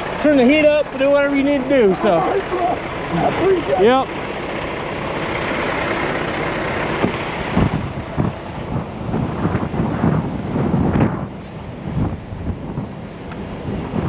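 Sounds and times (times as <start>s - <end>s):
heavy trucks rumbling: 0.0s - 14.0s
wind on microphone: 6.7s - 14.0s.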